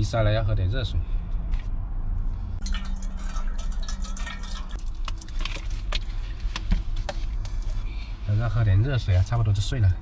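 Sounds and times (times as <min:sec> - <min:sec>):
low steady hum: 0:01.0 - 0:10.0
water trickling and dripping: 0:02.6 - 0:06.0.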